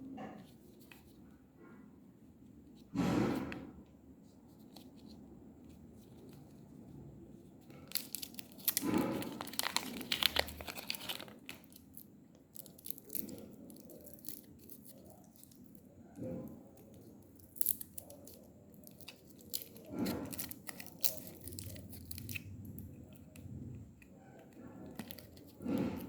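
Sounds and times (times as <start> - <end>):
plastic wrapper crinkling: 7.7 - 26.0.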